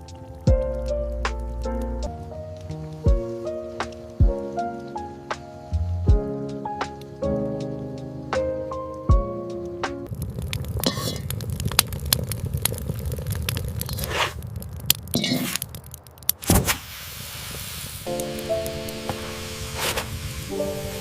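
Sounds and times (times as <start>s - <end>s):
background music: 0.0s - 10.1s, 18.1s - 21.0s
scraping and crackling in a pan: 10.0s - 16.8s, 17.5s - 21.0s.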